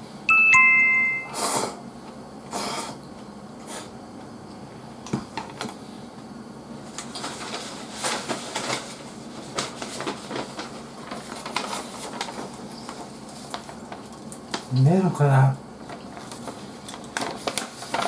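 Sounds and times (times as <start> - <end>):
paper sheet handling: 6.9 - 14.7, 15.9 - 18.0.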